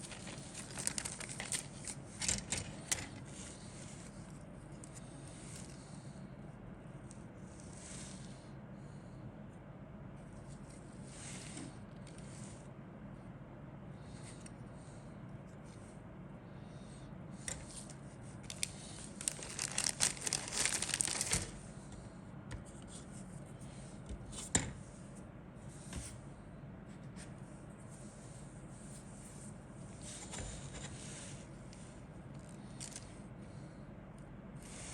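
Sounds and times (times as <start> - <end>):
plastic wrap crinkling: 0.0 - 2.7, 18.4 - 21.6.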